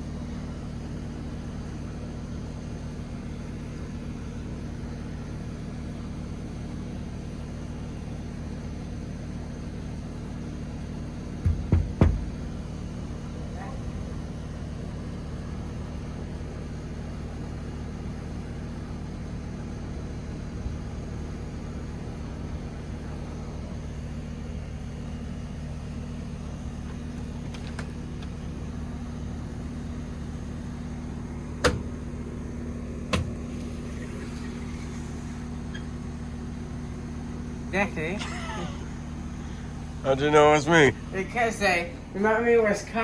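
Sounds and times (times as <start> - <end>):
low mechanical hum: 0.0 - 43.0
sharp knocks: 11.4 - 12.6.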